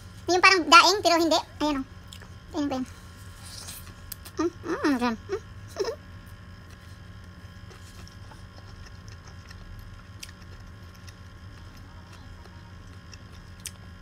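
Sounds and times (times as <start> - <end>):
low room hum: 0.0 - 14.0
person chewing food: 6.2 - 14.0.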